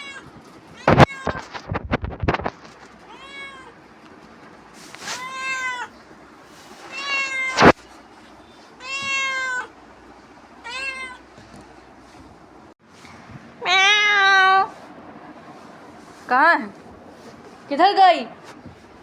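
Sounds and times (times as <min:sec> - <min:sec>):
cat meowing: 0:00.0 - 0:01.6, 0:03.1 - 0:03.8, 0:05.1 - 0:06.0, 0:06.9 - 0:07.7, 0:08.8 - 0:09.8, 0:10.6 - 0:11.3, 0:13.6 - 0:14.7.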